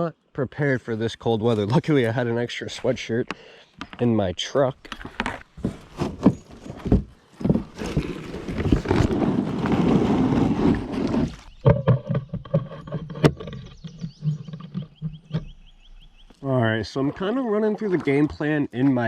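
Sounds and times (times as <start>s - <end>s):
kayak scraping: 1.2s - 3.3s, 4.8s - 16.3s.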